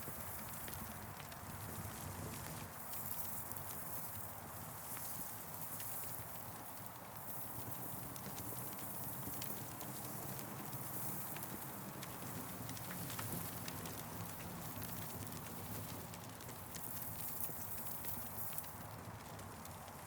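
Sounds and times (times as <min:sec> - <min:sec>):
campfire crackling: 0:07.5 - 0:20.0.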